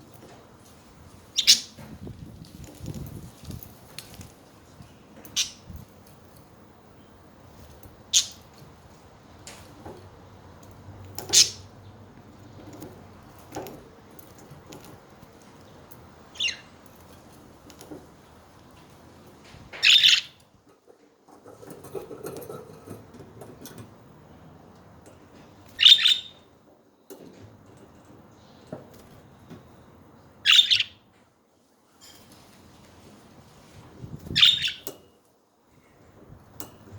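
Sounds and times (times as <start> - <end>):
budgerigars chirping: 1.4 - 1.7, 8.1 - 8.4, 11.3 - 11.7, 16.4 - 16.7, 19.8 - 20.4, 25.8 - 26.4, 30.4 - 31.0, 34.4 - 34.8.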